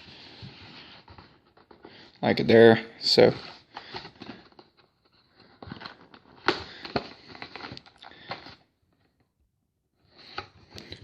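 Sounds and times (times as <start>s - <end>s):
cardboard and foil rustling: 3.2s - 8.6s.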